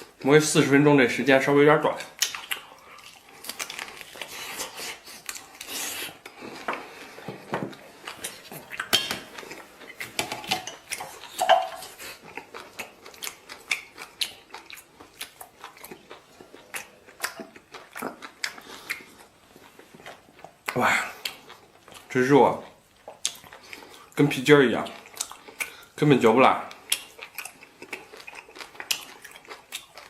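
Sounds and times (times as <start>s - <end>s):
utensils clinking against dishes: 11.4s - 11.9s.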